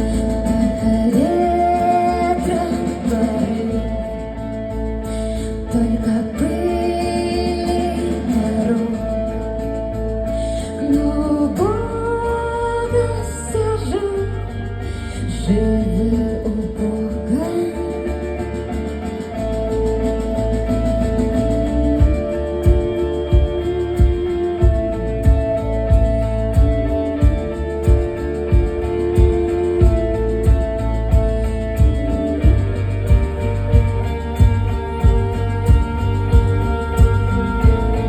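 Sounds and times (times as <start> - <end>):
live band music: 17.7 - 38.0.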